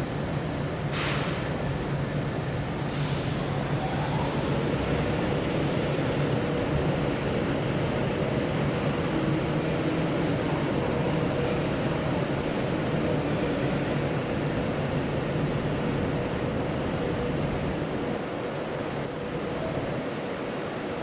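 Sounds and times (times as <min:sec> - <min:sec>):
high hiss: 0:02.9 - 0:06.8.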